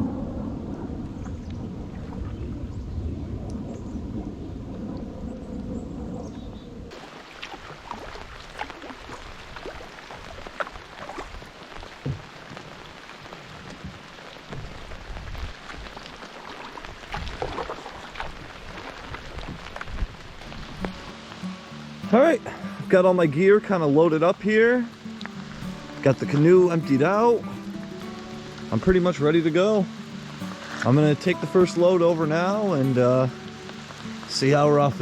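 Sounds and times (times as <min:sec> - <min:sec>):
thunder rumble: 0:00.0 - 0:07.0
steady rain: 0:06.8 - 0:35.0
raindrops tapping: 0:06.9 - 0:35.0.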